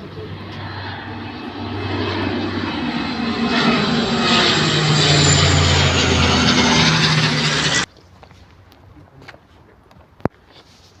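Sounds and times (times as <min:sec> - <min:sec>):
airplane flying low overhead: 0:00.0 - 0:07.9.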